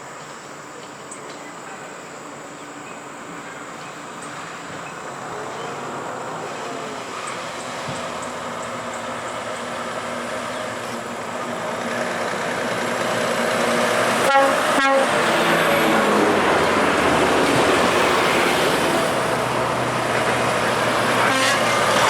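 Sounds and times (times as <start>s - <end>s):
heavy truck approaching: 4.3s - 22.0s
air horn blast: 14.2s - 15.4s, 21.2s - 22.0s.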